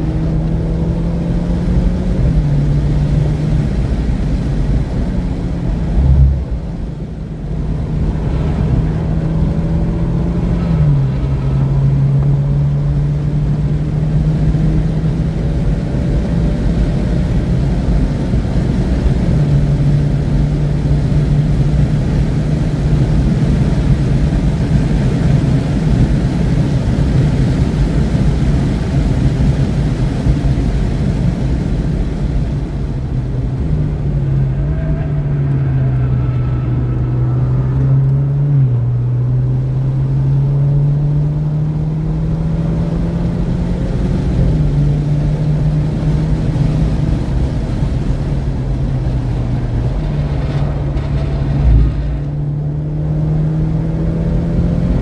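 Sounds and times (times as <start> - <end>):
car engine at high revs: 0.0 - 55.0
road and wind noise: 0.0 - 55.0.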